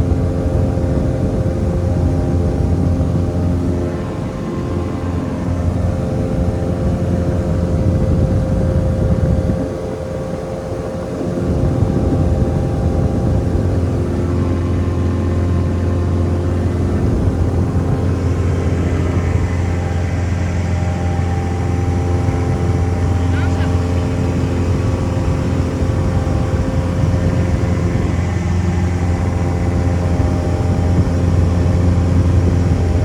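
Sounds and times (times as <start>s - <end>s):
truck diesel engine droning: 0.0s - 33.0s.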